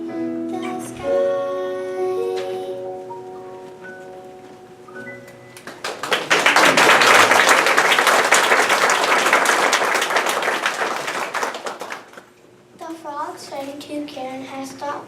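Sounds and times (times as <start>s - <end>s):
backing music held notes: 0.0s - 5.7s
audience applause: 5.6s - 12.3s.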